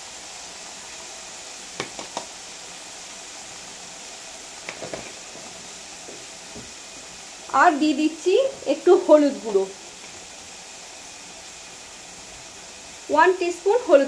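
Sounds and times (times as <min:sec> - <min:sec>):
paste sizzling in a pan: 0:00.0 - 0:14.0.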